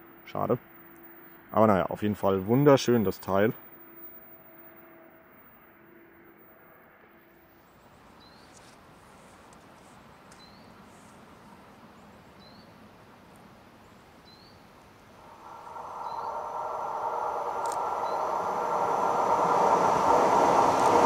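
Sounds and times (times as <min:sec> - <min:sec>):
faint rising chirp: 0:14.3 - 0:21.0
electric train approaching: 0:15.1 - 0:21.0.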